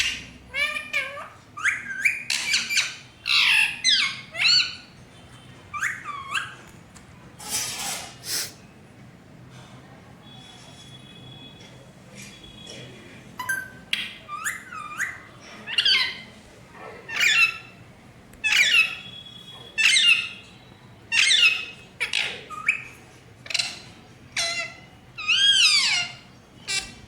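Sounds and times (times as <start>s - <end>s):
parrot squawking: 0.0s - 5.0s, 5.7s - 6.6s, 13.4s - 16.4s, 17.0s - 17.8s, 18.4s - 20.5s, 21.1s - 27.0s.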